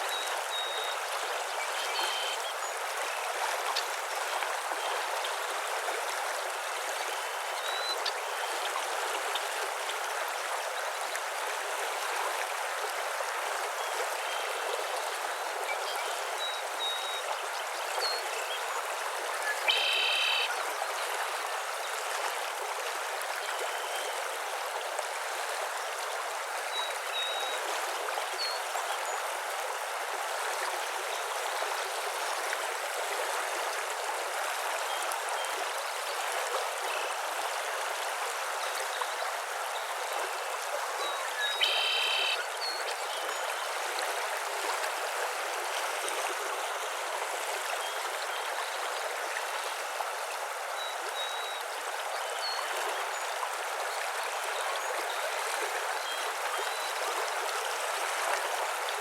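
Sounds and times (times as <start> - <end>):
running water rushing: 0.0 - 59.0
loud bird call: 19.7 - 20.5, 41.6 - 42.4
faint bird chirps: 41.0 - 43.5.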